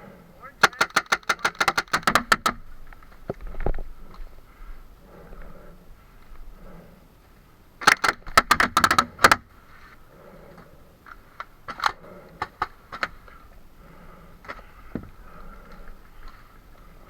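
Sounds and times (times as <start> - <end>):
paintball markers firing: 0.6 - 3.3, 7.8 - 9.5.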